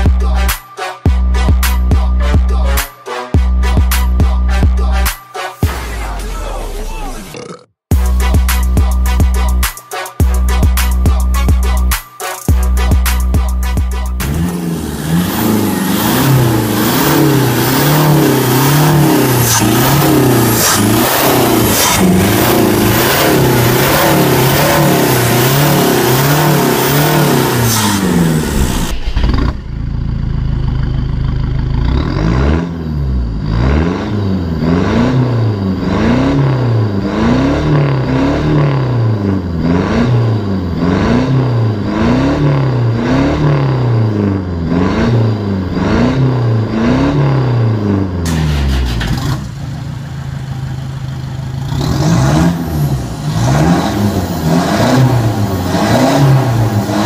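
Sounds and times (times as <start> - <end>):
diesel engine revving: 12.6 - 57.0.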